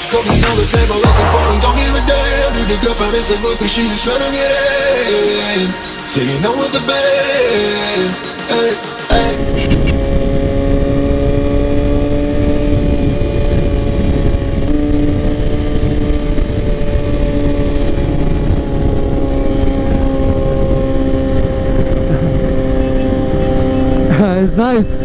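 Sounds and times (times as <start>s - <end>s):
motorcycle engine cruising: 9.1s - 25.0s
wind rumble on microphone: 9.1s - 25.0s.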